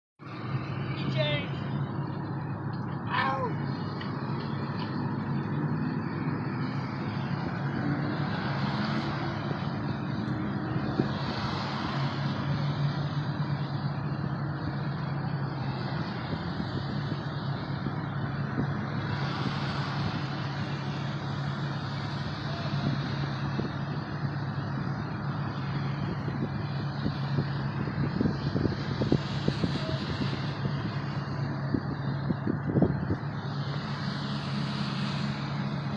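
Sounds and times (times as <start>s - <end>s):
vehicle engine idling: 0.2s - 35.9s
passing traffic hiss: 33.2s - 35.9s.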